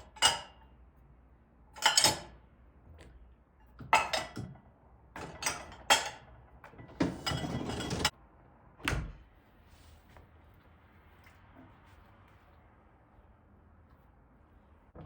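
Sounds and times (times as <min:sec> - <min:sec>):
sliding scrape: 0:07.0 - 0:08.1.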